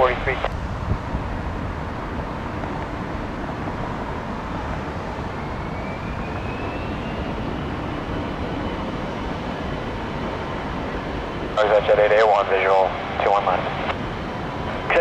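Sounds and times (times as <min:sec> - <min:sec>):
faint whine rising in pitch: 0:00.0 - 0:10.6
jet engines rumbling: 0:00.0 - 0:15.0.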